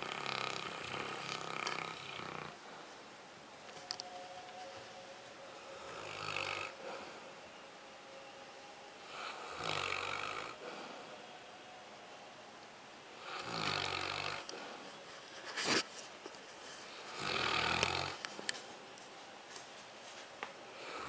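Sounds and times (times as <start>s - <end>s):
dog snoring: 0.0s - 2.7s, 5.8s - 7.2s, 9.0s - 10.9s, 13.2s - 14.8s, 17.1s - 18.2s.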